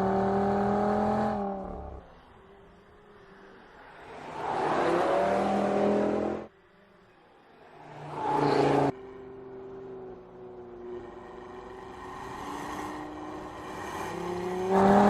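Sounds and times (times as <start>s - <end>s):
car engine revving: 0.0s - 6.5s, 7.7s - 15.0s.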